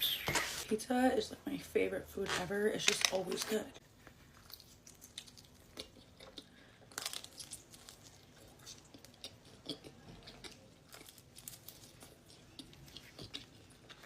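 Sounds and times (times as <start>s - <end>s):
pizza being bitten and chewed: 3.9s - 14.0s.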